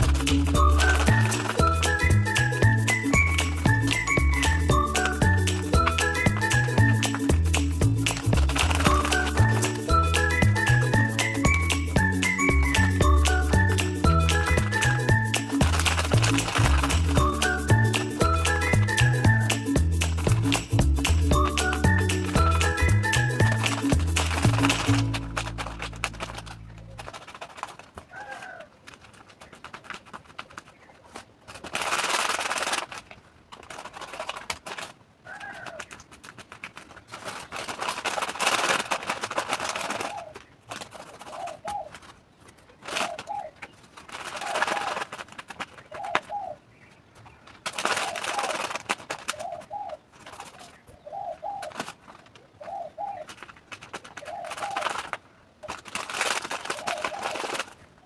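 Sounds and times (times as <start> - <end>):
bird cooing: 28.1 - 28.7, 35.3 - 35.8, 40.0 - 40.5, 41.2 - 42.1, 42.9 - 43.7, 45.8 - 46.7, 49.3 - 53.4, 54.2 - 55.1, 56.7 - 57.6.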